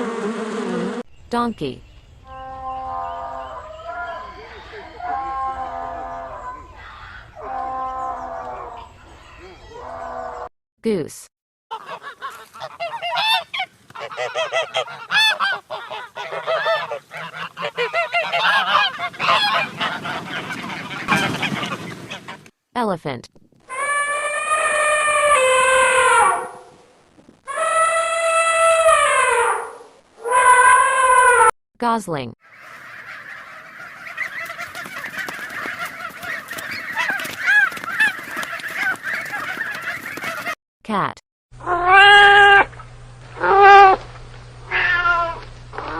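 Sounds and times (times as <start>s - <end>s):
goslings peeping: 2.2s - 10.4s, 11.7s - 22.5s, 32.4s - 40.6s
geese honking: 2.3s - 8.9s, 11.7s - 22.5s, 32.4s - 40.6s, 43.4s - 44.0s.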